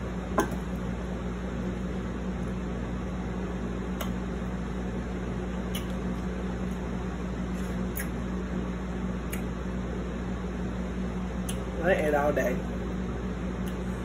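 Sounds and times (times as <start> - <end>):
low hum and hiss: 0.0 - 14.0
crisp pickle chewing clicks: 5.7 - 6.0, 9.3 - 9.5.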